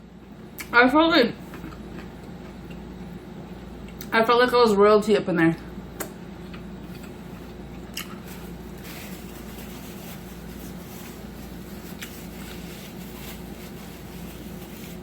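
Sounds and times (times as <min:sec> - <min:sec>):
steady low hum: 0:00.0 - 0:15.0
person chewing: 0:01.5 - 0:04.1, 0:06.0 - 0:08.4.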